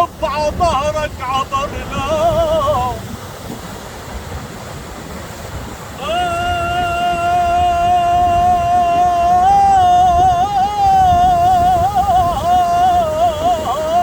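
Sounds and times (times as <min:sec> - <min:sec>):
man singing unaccompanied: 0:00.0 - 0:03.1, 0:06.0 - 0:14.0.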